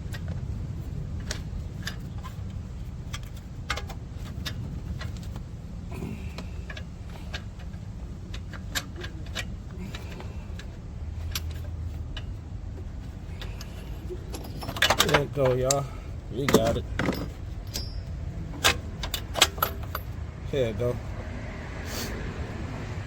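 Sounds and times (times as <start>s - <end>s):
ratchet clicking metallically: 13.4s - 20.2s.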